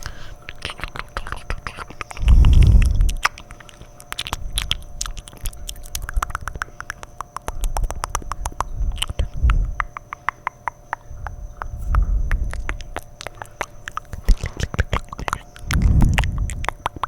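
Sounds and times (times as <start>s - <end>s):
wet mouth clicks and smacks: 0.0s - 17.0s
low muffled rumble: 2.2s - 3.2s, 7.7s - 9.8s, 11.1s - 13.1s, 15.6s - 17.0s.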